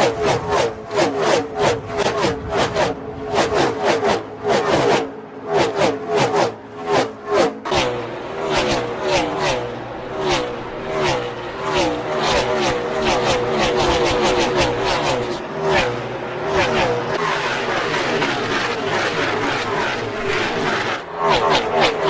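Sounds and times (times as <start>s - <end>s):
race car engines passing by: 0.0s - 22.0s.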